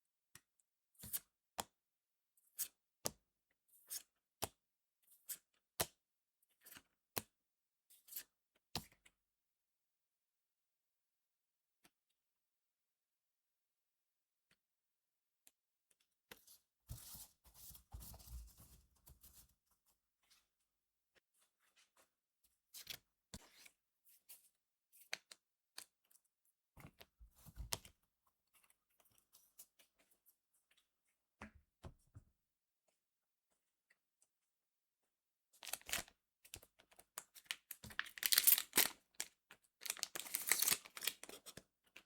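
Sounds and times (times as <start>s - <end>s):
cards clicking and rustling: 37.9s - 39.0s, 39.9s - 41.6s
foil pack tearing and crinkling: 38.0s - 38.9s, 39.8s - 41.3s.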